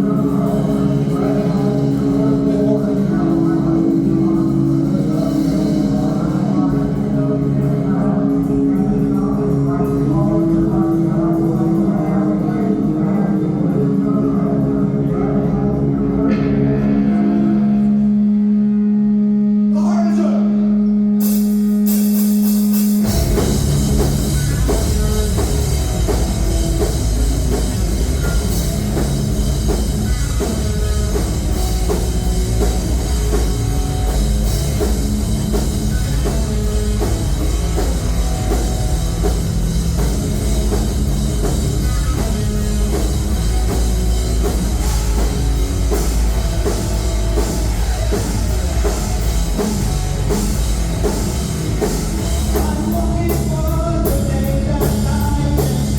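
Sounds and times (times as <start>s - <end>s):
heavy rock band playing: 0.0s - 55.9s.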